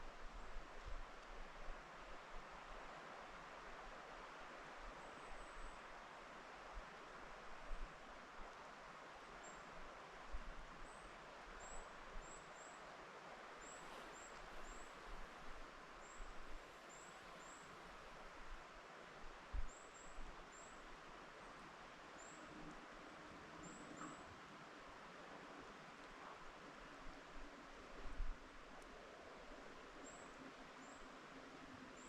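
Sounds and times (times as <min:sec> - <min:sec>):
wind rustling through trees: 0:00.0 - 0:32.0.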